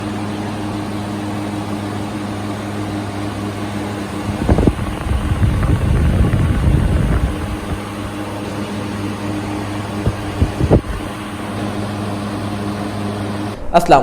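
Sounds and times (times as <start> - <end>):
air cooler motor and fan: 0.0 - 13.6
irregular low rumbling: 4.0 - 8.5, 9.8 - 11.2.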